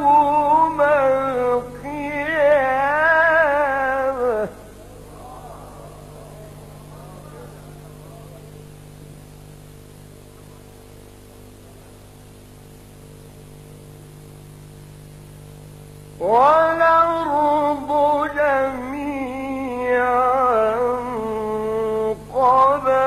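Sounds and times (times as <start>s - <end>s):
man reciting melodically: 0.0s - 4.6s, 16.2s - 23.0s
low electrical hum: 0.0s - 23.0s.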